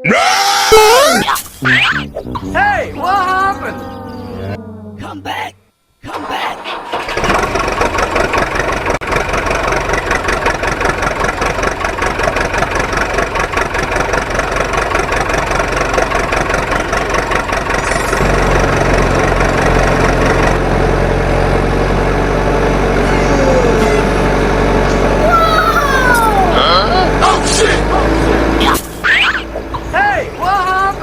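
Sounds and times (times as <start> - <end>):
deep steady drone: 1.6 - 6.2
heavy machine engine chugging: 6.1 - 31.0.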